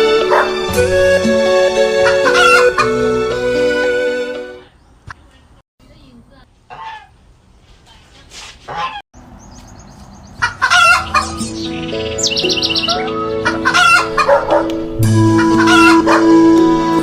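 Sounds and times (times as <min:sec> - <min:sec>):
background music with held notes: 0:00.0 - 0:04.6, 0:10.8 - 0:17.0
hens clucking: 0:08.7 - 0:09.0, 0:10.4 - 0:11.4, 0:12.8 - 0:14.8, 0:15.4 - 0:16.4
high chirps: 0:09.4 - 0:14.0.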